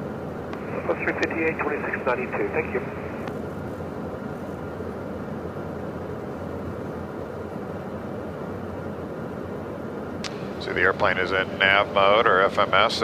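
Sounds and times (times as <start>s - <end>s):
low hum: 0.0s - 13.0s
airflow rush in jet cockpit: 0.1s - 12.8s.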